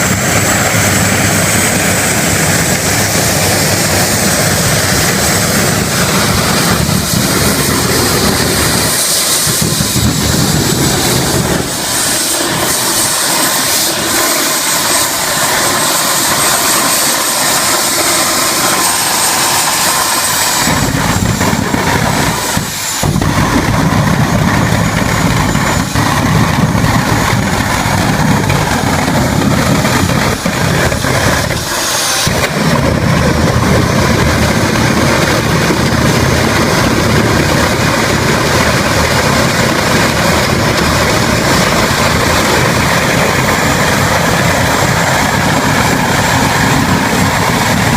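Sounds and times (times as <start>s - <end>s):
deep roar: 0.0s - 47.9s
jet engine whining: 0.0s - 47.9s.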